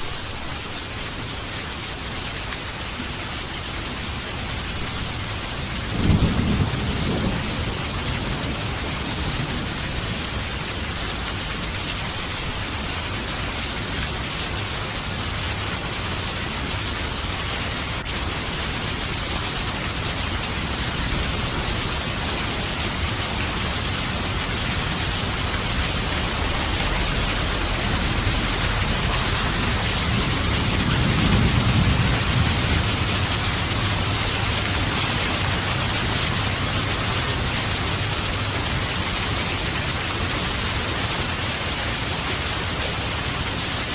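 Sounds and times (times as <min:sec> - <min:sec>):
heavy rain falling: 0:00.0 - 0:43.9
low roll of thunder: 0:05.7 - 0:10.9, 0:23.8 - 0:38.4.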